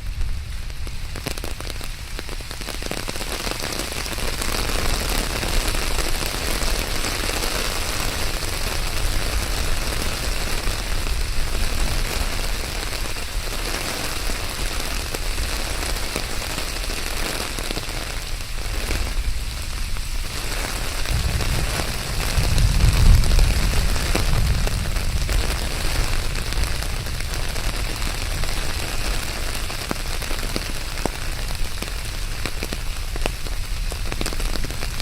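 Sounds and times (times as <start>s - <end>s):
steady rain falling: 0.0s - 35.0s
deep low rumble: 21.0s - 28.9s.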